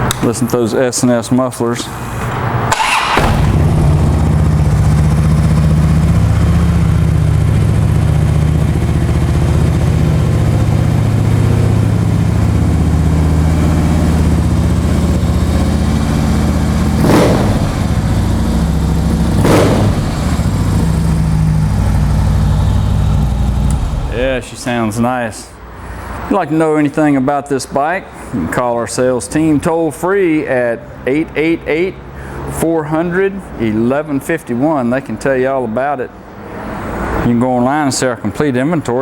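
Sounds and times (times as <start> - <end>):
motorcycle engine idling: 2.7 - 24.4
motorcycle throttle blips: 2.7 - 24.5.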